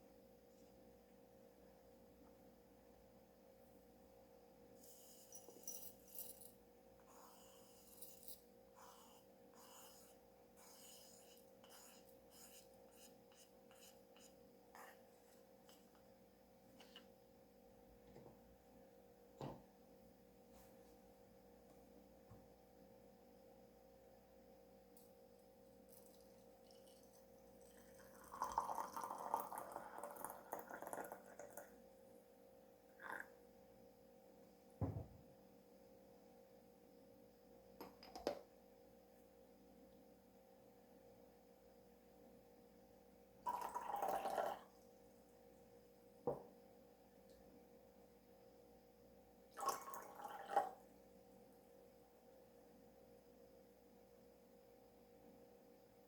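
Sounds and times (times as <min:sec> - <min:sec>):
faint steady hum: 0:00.0 - 0:56.0
tea set clinking: 0:25.9 - 0:31.7, 0:43.5 - 0:44.6, 0:49.6 - 0:50.7.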